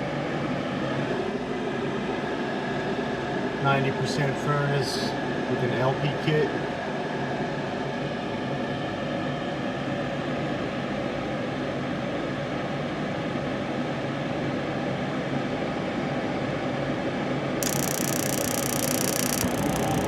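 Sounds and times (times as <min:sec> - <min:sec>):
furnace fan motor hum: 0:17.6 - 0:20.0.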